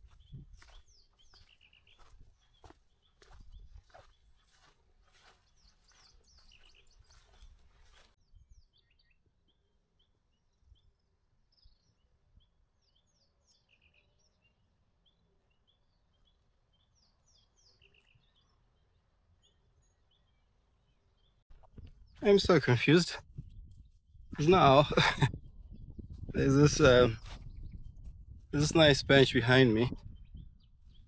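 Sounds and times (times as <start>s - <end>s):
faint bird chirps: 0.0s - 22.2s.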